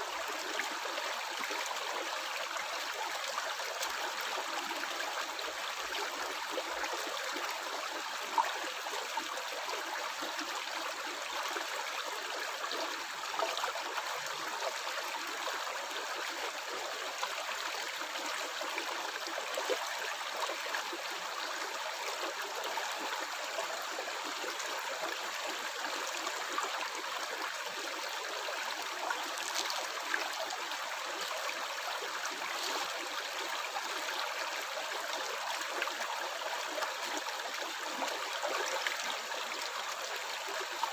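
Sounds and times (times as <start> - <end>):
stream flowing and gurgling: 0.0 - 40.9
water splashes and drips: 28.8 - 30.6.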